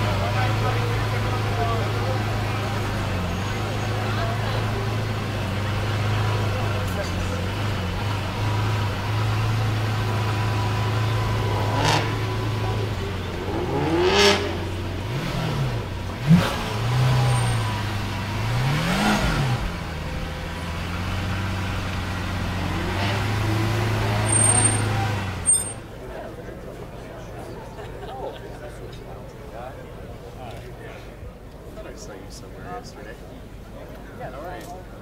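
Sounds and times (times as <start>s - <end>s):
car engines revving or passing: 0.0s - 27.5s
low engine rumble: 0.0s - 35.0s.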